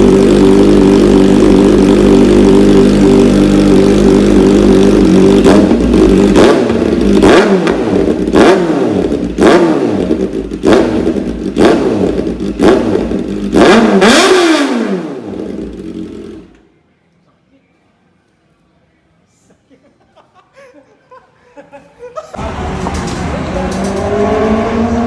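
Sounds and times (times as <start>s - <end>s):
motorcycle engine revving: 0.0s - 16.6s, 22.4s - 25.0s.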